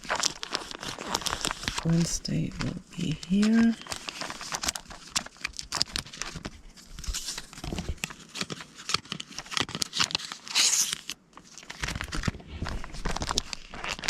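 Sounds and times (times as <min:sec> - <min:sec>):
paper cards rustling: 0:00.0 - 0:14.0
paper tearing rustle: 0:00.0 - 0:14.0.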